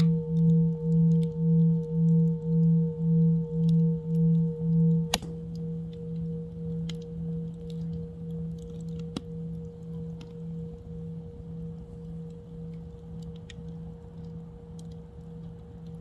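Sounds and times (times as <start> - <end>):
singing bowl ringing: 0.0 - 12.7
campfire crackling: 0.0 - 16.0
sharp click: 5.1 - 5.4.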